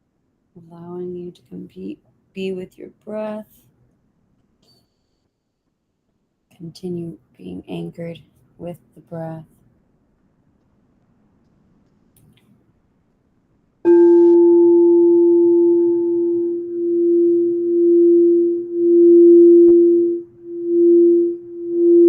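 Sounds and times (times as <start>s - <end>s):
singing bowl ringing: 13.9s - 22.0s.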